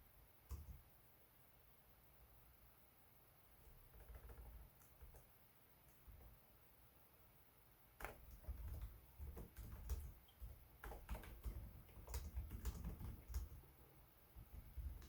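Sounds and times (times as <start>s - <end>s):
laptop keyboard typing: 0.5s - 0.8s, 3.7s - 5.3s, 8.0s - 13.8s, 14.4s - 15.0s.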